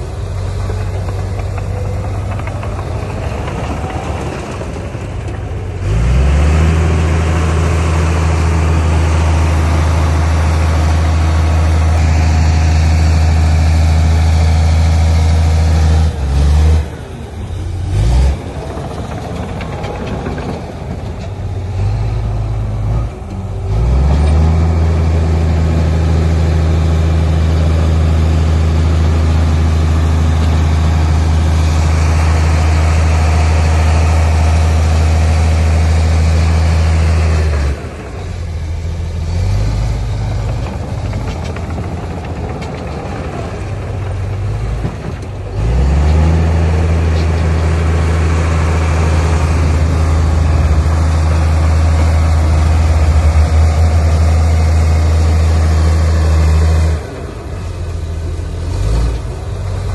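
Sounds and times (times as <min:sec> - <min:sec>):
heavy diesel engine revving: 0:00.0 - 0:59.9.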